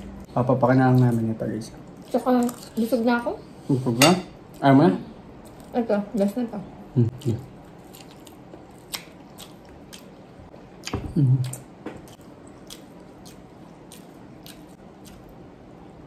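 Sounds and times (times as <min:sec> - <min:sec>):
biting and chewing: 0:07.2 - 0:15.4.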